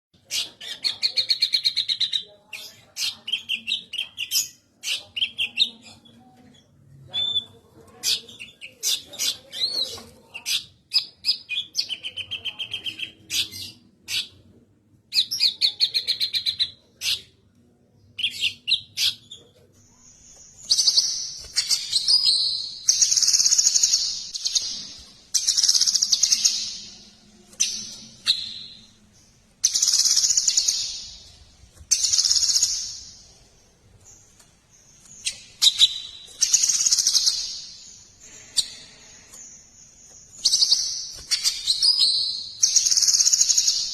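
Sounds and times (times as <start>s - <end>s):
songbird trills and whistles: 40.4s - 43.9s.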